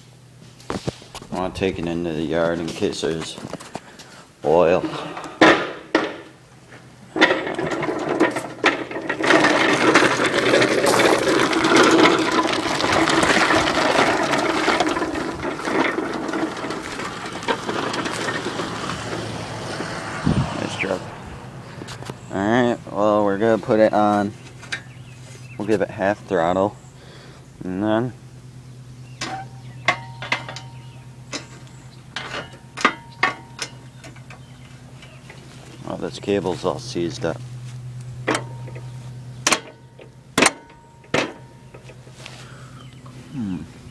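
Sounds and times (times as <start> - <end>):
lawn mower engine running: 0.0 - 43.9
engine knocks: 4.8 - 43.9.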